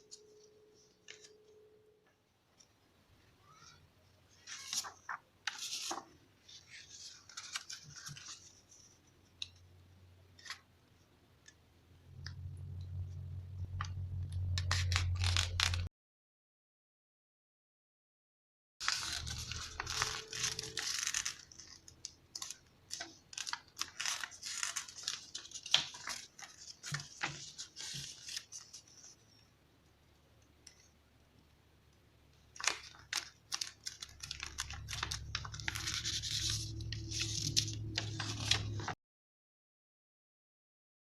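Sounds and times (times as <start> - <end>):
paper folding rustles: 4.4 - 9.6, 13.8 - 15.9, 18.8 - 29.5, 32.6 - 39.0
low steady hum: 11.6 - 15.9, 34.2 - 38.9.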